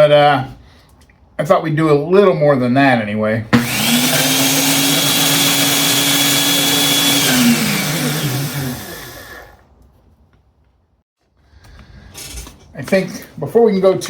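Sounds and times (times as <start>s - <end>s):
drill motor winding down: 3.6s - 9.6s
electric drill whining: 3.6s - 9.6s.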